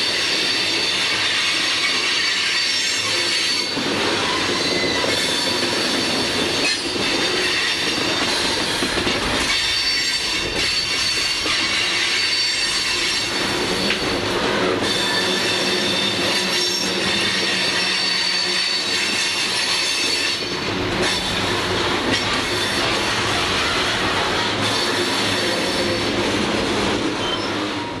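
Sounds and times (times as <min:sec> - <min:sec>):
train wheels rumbling and clattering: 0:00.0 - 0:28.0
wheel flanges squealing: 0:09.4 - 0:20.5, 0:27.1 - 0:28.0.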